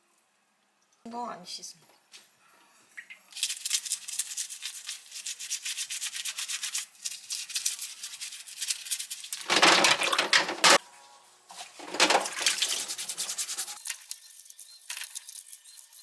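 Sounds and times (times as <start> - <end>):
abalone being scrubbed: 11.5 - 13.8.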